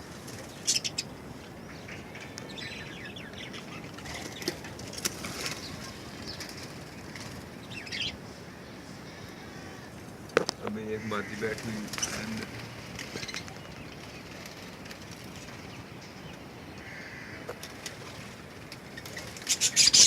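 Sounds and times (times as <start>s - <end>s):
budgerigars flapping wings: 0.0s - 1.1s, 3.9s - 8.0s, 10.4s - 15.9s, 16.8s - 20.0s.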